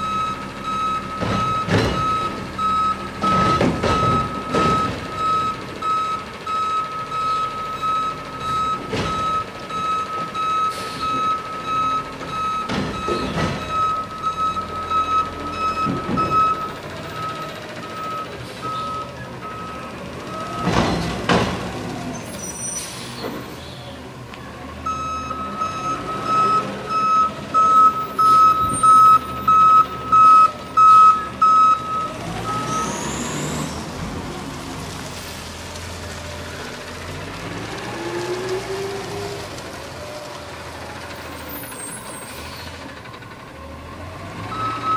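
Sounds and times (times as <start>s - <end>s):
reversing alarm beeping: 0.0s - 20.8s, 24.8s - 33.4s, 44.5s - 44.9s
truck engine running: 0.0s - 22.4s.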